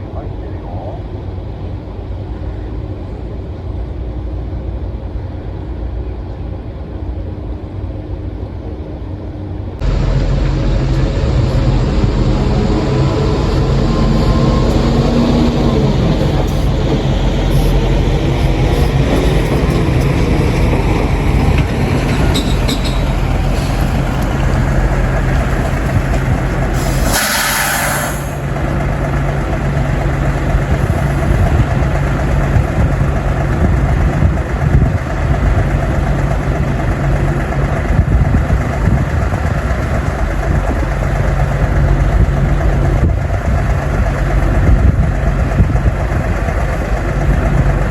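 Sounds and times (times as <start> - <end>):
engine running: 9.6 - 47.9
loud burst of hiss: 26.7 - 28.4
constant rushing noise: 28.2 - 47.9.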